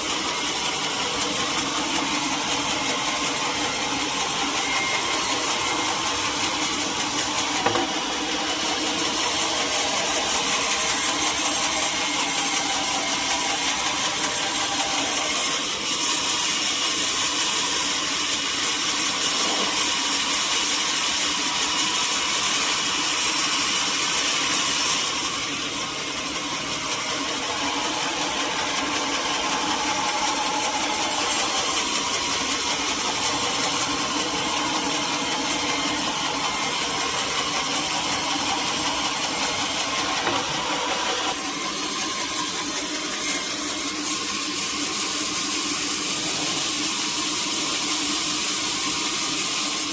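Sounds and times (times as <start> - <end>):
sawmill saw cutting timber: 0.0 - 49.9.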